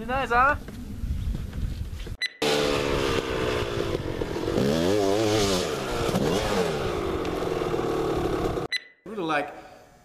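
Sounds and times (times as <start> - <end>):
dirt bike engine revving: 2.4 - 8.7.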